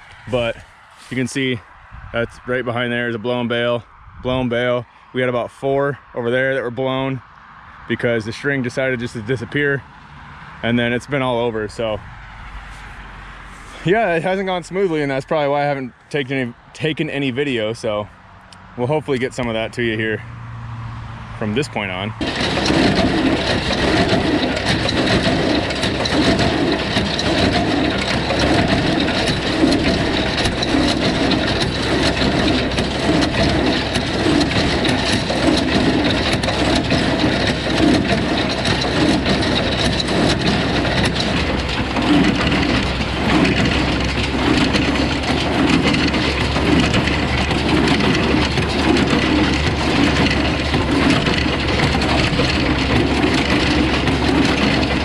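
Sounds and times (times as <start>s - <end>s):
baler plunger packing hay: 0.0s - 1.4s, 12.5s - 15.2s, 22.2s - 55.0s
tractor running: 0.0s - 55.0s.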